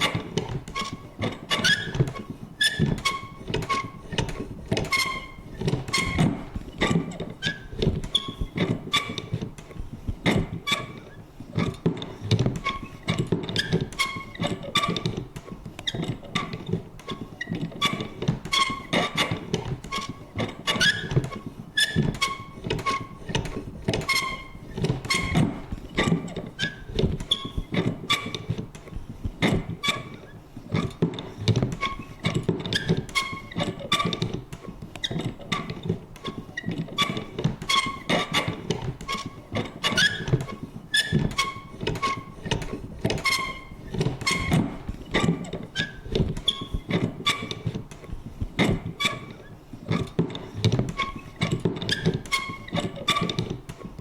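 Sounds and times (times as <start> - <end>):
short squeaky creaks: 0.0 - 54.0
paper punch clunks and clicks: 30.8 - 54.0.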